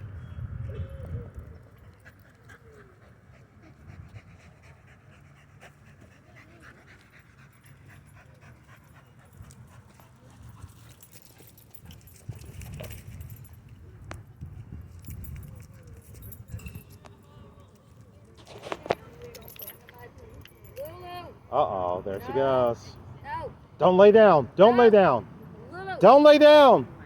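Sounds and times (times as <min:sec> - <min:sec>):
dog panting: 0:01.7 - 0:13.0.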